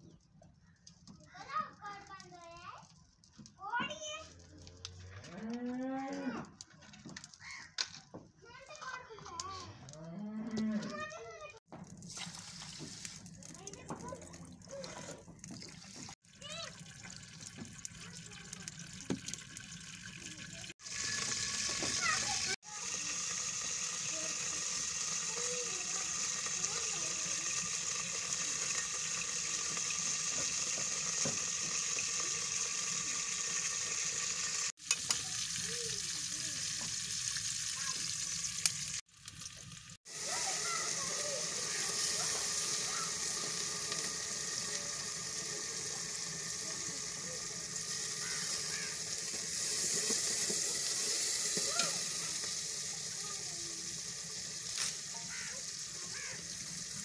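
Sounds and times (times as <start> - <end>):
small birds chirping: 0.0 - 1.4
pot sizzling: 6.2 - 57.0.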